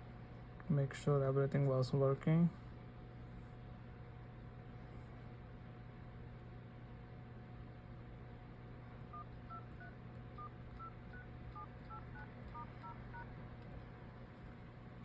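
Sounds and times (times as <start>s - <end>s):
phone keypad beeps: 9.1s - 13.3s.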